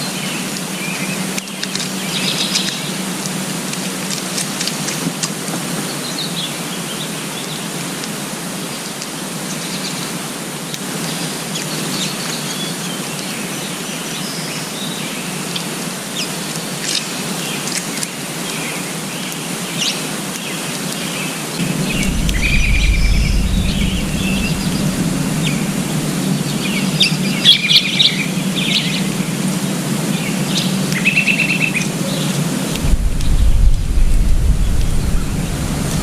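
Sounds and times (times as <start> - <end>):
steady outdoor hiss: 0.0 - 36.0
low rumble: 21.6 - 29.3, 32.7 - 36.0.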